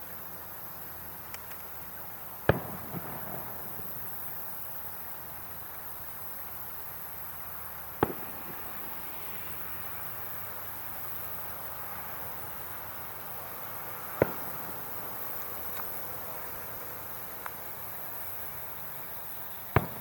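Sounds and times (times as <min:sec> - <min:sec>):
background hiss: 0:00.0 - 0:20.0
firework bursts: 0:02.3 - 0:05.5, 0:06.2 - 0:20.0.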